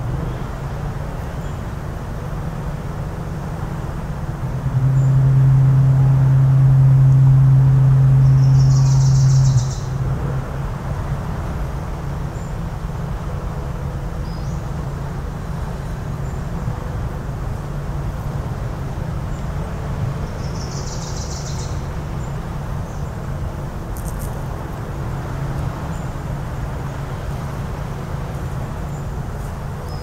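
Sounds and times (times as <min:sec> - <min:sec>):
low background rumble: 0:00.0 - 0:30.0
foghorn blast: 0:04.4 - 0:10.4
bird chirp: 0:08.2 - 0:10.0, 0:20.3 - 0:23.2.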